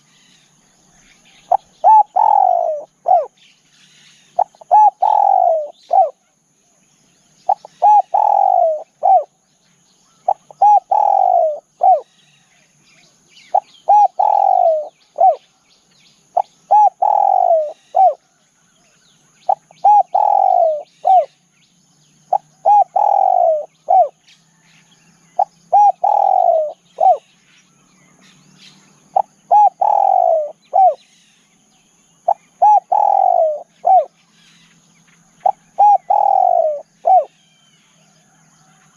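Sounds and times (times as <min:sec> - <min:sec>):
faint bird chirps: 0:00.0 - 0:38.9
dove cooing: 0:01.4 - 0:03.4, 0:04.3 - 0:06.2, 0:07.5 - 0:09.4, 0:10.1 - 0:12.1, 0:13.5 - 0:15.5, 0:16.4 - 0:18.4, 0:19.4 - 0:21.4, 0:22.3 - 0:24.2, 0:25.4 - 0:27.3, 0:28.9 - 0:31.1, 0:32.2 - 0:34.2, 0:35.4 - 0:37.4.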